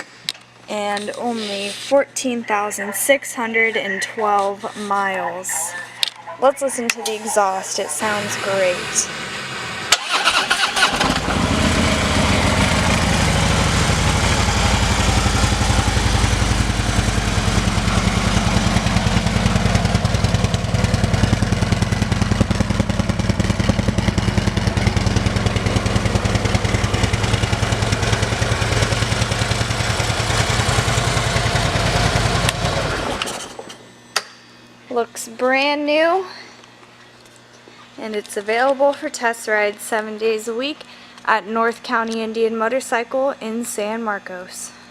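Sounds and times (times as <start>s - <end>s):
motorcycle engine starting and idling: 7.9s - 33.9s.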